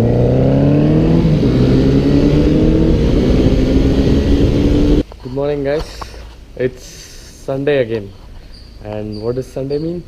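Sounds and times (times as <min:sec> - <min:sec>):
motorcycle engine accelerating: 0:00.0 - 0:05.0.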